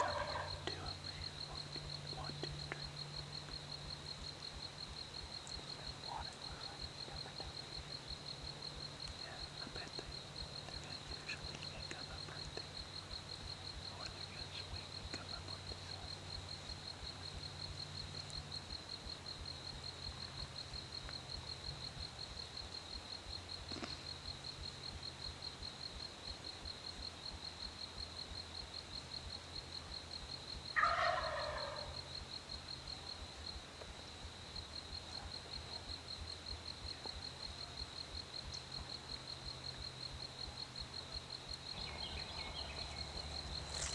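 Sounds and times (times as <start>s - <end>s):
turkey gobbling: 0.0s - 0.6s, 30.8s - 31.9s
high-pitched insect trill: 35.6s - 43.9s.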